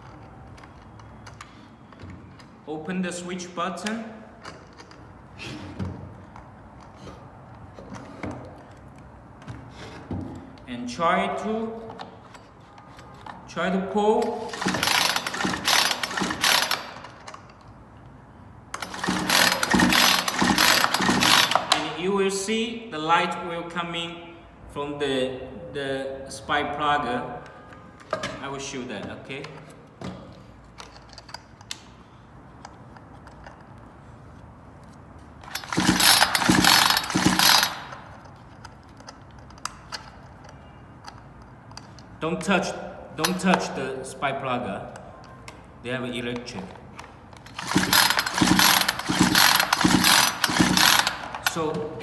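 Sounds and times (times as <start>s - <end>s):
chainsaw recoil starter rasping: 14.2s - 17.5s, 18.8s - 22.0s, 35.4s - 38.3s, 43.2s - 43.6s, 47.4s - 52.0s.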